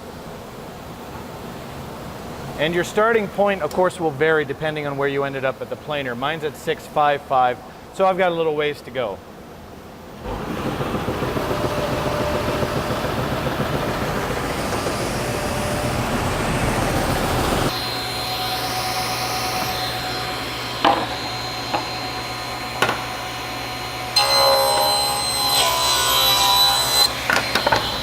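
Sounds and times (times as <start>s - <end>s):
sander humming and whining: 10.2s - 28.0s
thickness sander planing board: 10.2s - 28.0s.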